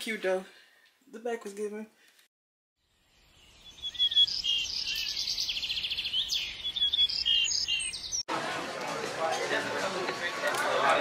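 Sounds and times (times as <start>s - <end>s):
birds chirping and trilling: 2.8s - 8.2s.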